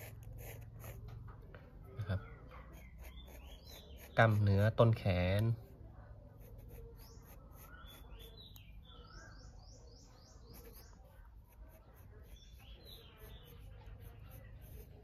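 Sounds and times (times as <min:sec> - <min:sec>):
pencil scratching on paper: 0:00.0 - 0:01.2, 0:02.6 - 0:08.5, 0:10.4 - 0:15.0
birds chirping: 0:00.0 - 0:15.0.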